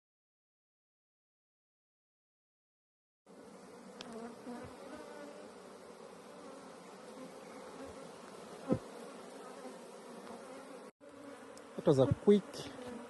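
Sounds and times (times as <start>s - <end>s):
honeybees buzzing: 3.3s - 13.0s.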